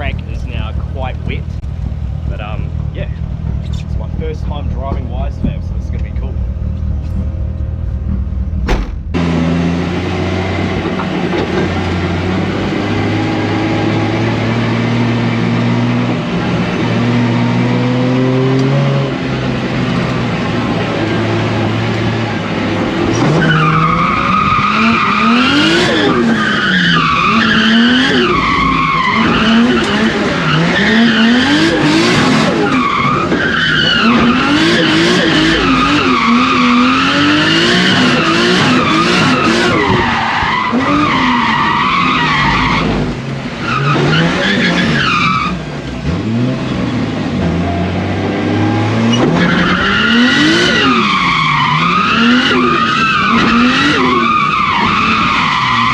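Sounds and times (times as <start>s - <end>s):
car engine revving: 0.0s - 55.9s
tyre squeal: 23.1s - 31.8s, 37.8s - 45.6s.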